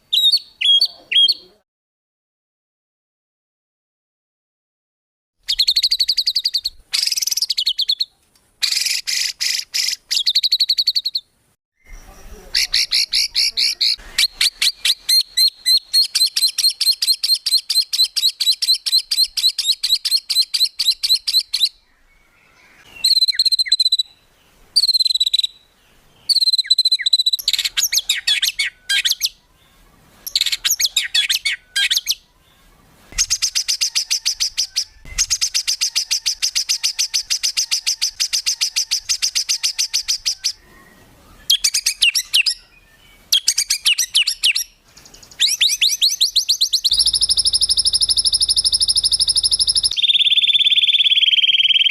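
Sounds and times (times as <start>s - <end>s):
songbird trilling rapid notes: 5.4s - 21.8s, 23.0s - 24.2s, 24.8s - 25.6s, 26.2s - 29.4s, 30.2s - 32.2s, 33.2s - 40.6s, 41.5s - 42.6s, 43.3s - 51.9s.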